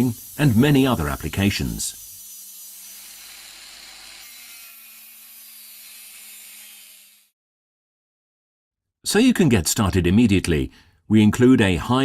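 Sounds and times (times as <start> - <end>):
angle grinder disc hissing: 0.0 - 3.4.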